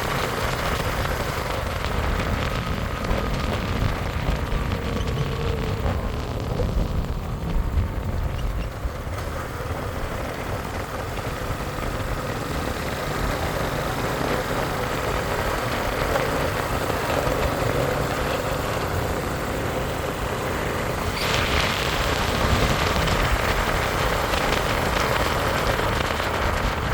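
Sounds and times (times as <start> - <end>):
motorcycle engine rumbling: 0.0 - 26.9.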